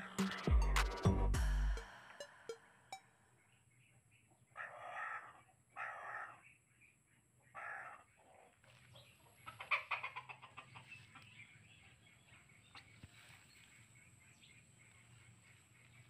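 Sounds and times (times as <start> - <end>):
bird squawking and clucking: 4.5 - 6.4, 7.5 - 8.5, 9.2 - 11.2.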